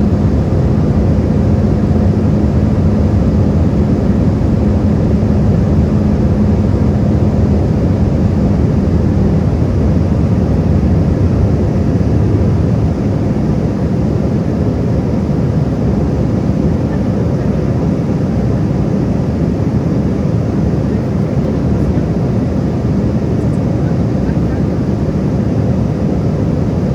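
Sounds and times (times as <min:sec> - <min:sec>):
hum: 0:00.0 - 0:17.6
airliner cabin engine rumble: 0:00.0 - 0:26.9.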